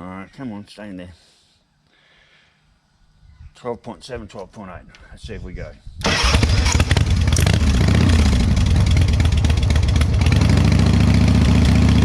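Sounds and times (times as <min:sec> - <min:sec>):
motorcycle engine revving and idling: 0:06.1 - 0:12.0.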